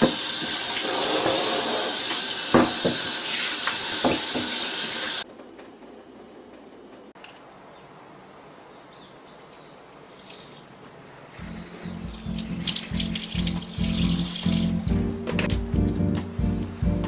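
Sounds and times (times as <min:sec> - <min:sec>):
tap water running into sink: 0:00.0 - 0:05.2, 0:12.1 - 0:14.8
background music with beat: 0:11.4 - 0:17.0.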